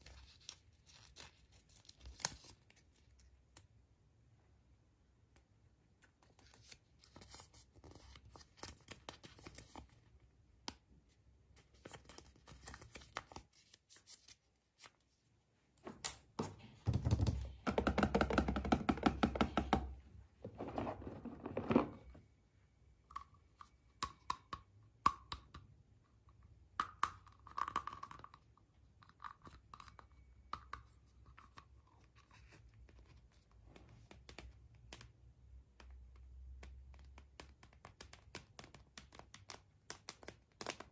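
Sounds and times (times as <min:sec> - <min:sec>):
taps and knocks: 0:16.4 - 0:19.9.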